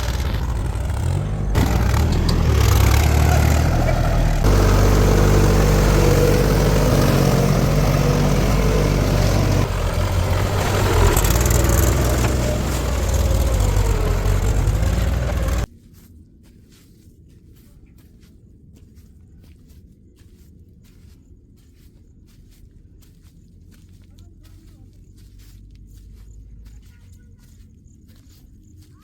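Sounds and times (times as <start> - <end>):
heavy diesel machinery engine: 0.0 - 15.7.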